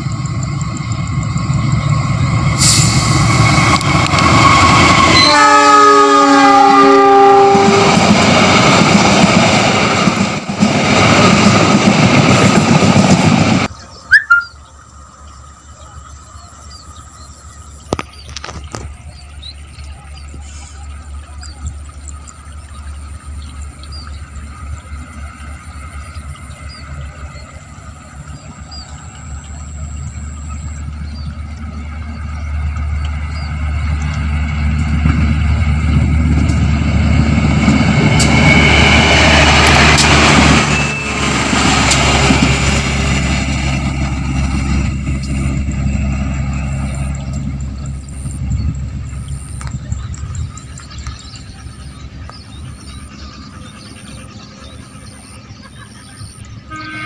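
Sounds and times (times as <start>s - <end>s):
diesel train approaching: 0.0s - 57.0s
bird chirps: 13.7s - 27.6s.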